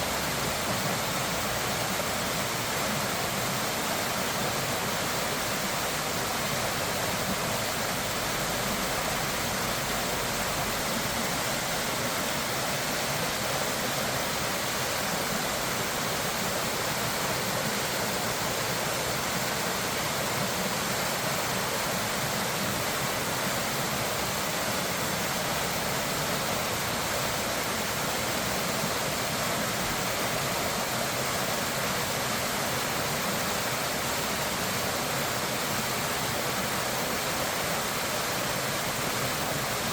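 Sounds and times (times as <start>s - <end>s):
rushing water roar: 0.0s - 39.9s.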